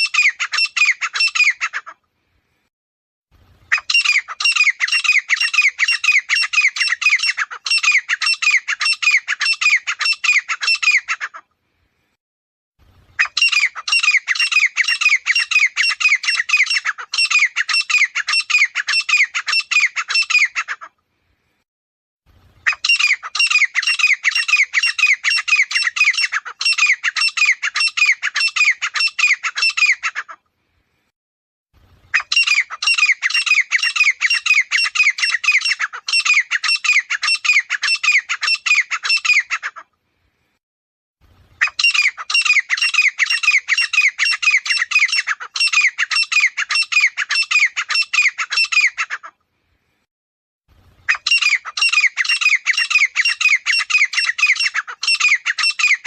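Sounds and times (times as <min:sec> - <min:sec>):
francolin calling: 0:13.2 - 0:20.7, 0:51.1 - 0:56.0.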